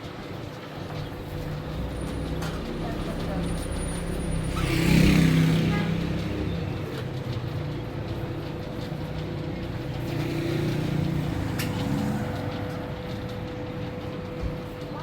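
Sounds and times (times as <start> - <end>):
constant hum: 0.0 - 4.8
vehicle engine and road rumble: 0.5 - 15.0.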